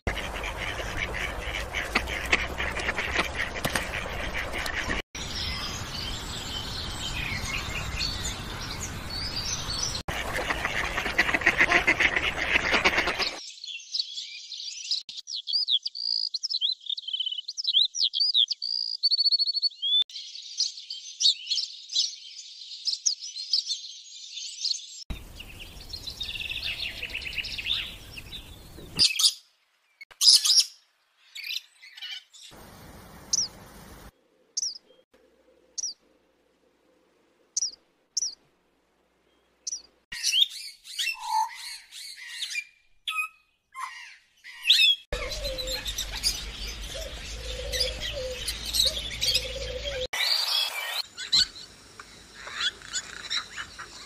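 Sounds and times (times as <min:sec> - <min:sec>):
birds chattering: 0:00.0 - 0:14.3, 0:43.8 - 0:54.0
bird chirps and trills: 0:34.6 - 0:36.0, 0:37.6 - 0:38.4, 0:39.4 - 0:54.0
loud sharp bird calls: 0:39.7 - 0:54.0.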